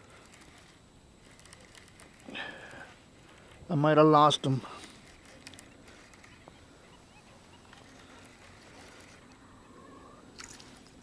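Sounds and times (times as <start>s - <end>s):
small clicks: 0.1s - 3.6s, 4.8s - 6.6s, 10.3s - 11.0s
distant bird calls: 4.6s - 11.0s.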